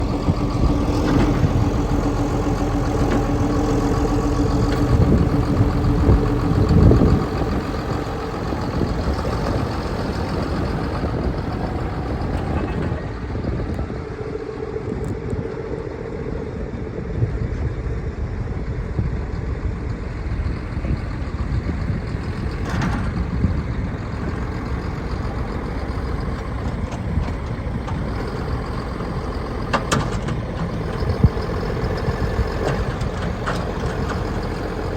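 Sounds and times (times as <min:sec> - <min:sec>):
tractor diesel engine idling: 0:00.0 - 0:34.9.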